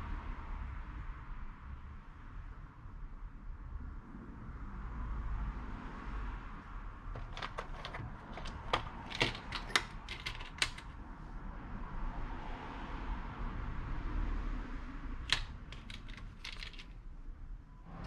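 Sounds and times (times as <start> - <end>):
sharp mechanical clicks: 7.2 - 10.9, 15.3 - 17.0.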